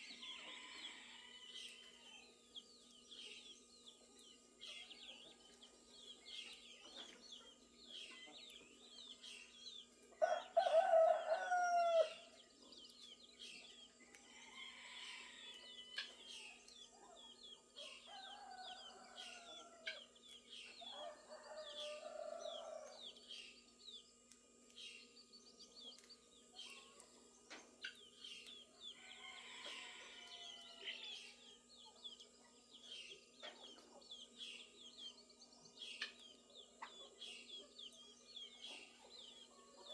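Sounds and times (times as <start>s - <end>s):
songbirds chirping: 0.0s - 39.9s
rooster crowing: 0.2s - 2.3s, 10.2s - 12.3s, 14.4s - 16.0s, 20.9s - 23.0s, 28.9s - 31.4s.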